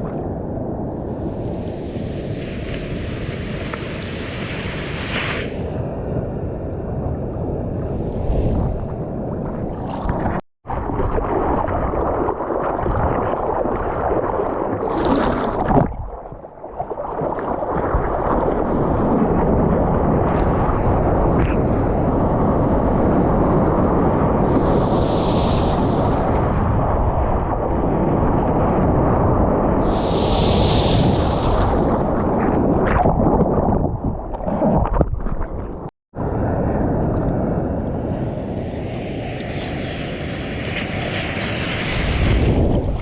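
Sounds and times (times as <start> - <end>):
surf and rushing water: 0.0 - 43.0
wind buffeting microphone: 17.2 - 43.0.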